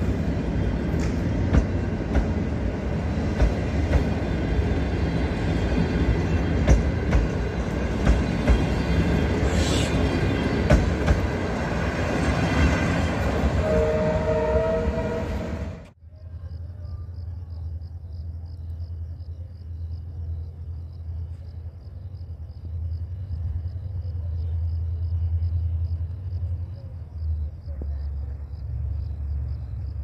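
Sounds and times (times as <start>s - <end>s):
train coaches rumbling: 0.0s - 16.0s
wheels clanking over rail joints: 0.8s - 9.4s
two-note train horn: 13.5s - 15.9s.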